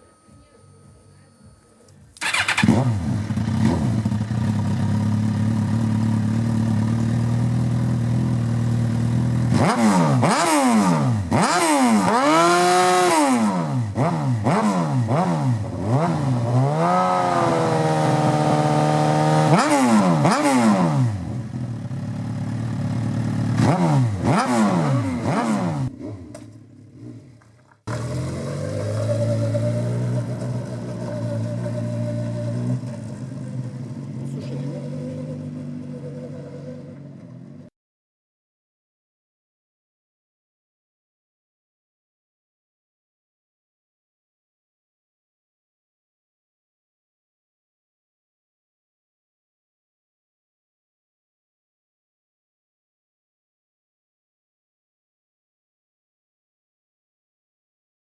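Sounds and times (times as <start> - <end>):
motorcycle engine idling: 0.0 - 9.5, 21.3 - 23.7, 25.8 - 37.7
motorcycle engine revving: 2.1 - 37.7.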